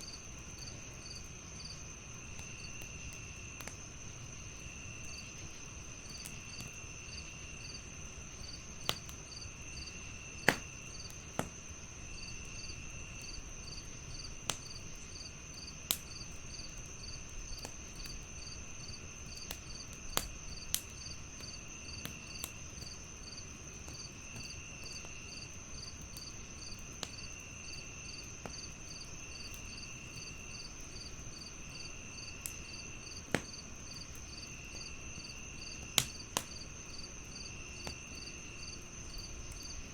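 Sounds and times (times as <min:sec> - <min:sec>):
crickets chirping: 0:00.0 - 0:39.9
wood fire crackling: 0:00.0 - 0:39.9
lower insect trill: 0:24.0 - 0:39.8.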